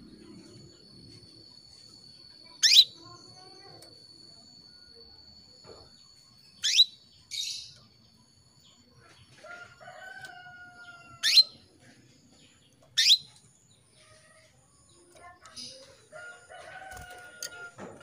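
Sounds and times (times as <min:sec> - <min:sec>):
canary calling: 0:02.5 - 0:03.2, 0:06.6 - 0:07.8, 0:09.6 - 0:11.7, 0:13.0 - 0:13.4.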